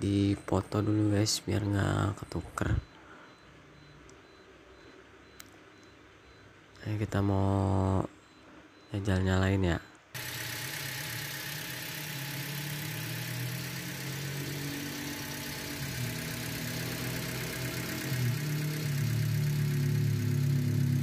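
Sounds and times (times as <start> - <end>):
car engine idling: 10.2 - 21.0.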